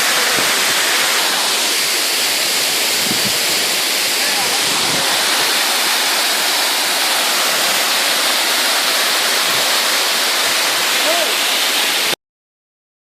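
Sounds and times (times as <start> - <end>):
waterfall crashing onto rocks: 0.0 - 12.2.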